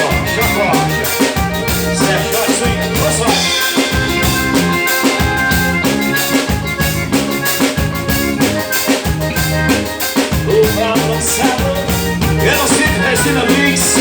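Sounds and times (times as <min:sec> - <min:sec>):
bass line: 0:00.0 - 0:14.0
drum kit steady beat: 0:00.0 - 0:14.0.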